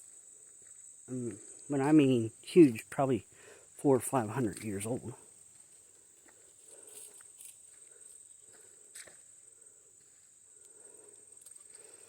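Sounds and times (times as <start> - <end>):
footsteps on forest floor: 4.0 - 9.3.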